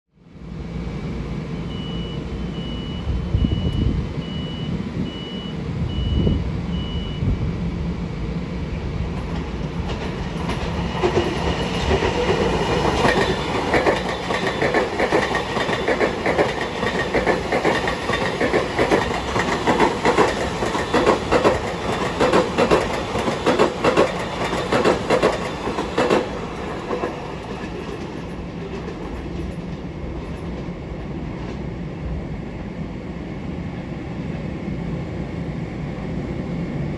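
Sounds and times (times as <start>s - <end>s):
train rumbling: 0.2s - 36.9s
short high beeps: 1.7s - 7.2s
train wheels clicking over rail joints: 9.1s - 30.8s.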